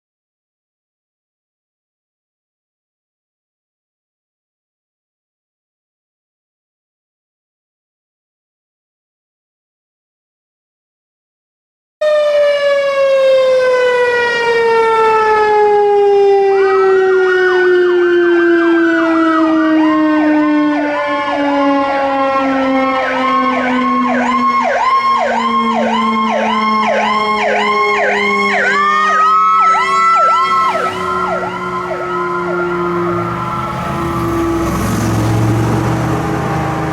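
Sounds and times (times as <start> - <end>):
long falling siren tone: 12.0 - 36.9
rising siren wail: 12.0 - 36.9
siren fast yelp: 12.0 - 36.9.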